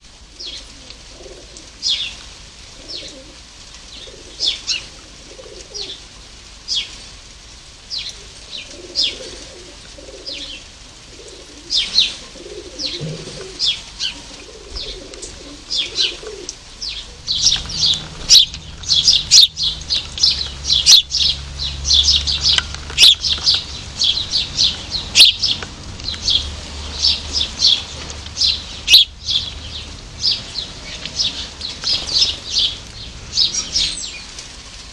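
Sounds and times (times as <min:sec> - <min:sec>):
pigeon cooing: 0:00.3 - 0:02.1, 0:02.8 - 0:03.4, 0:04.0 - 0:06.0, 0:08.2 - 0:25.6
small birds chirping: 0:00.3 - 0:03.2, 0:06.7 - 0:07.2, 0:07.9 - 0:34.5
wing flutters: 0:13.4 - 0:26.4.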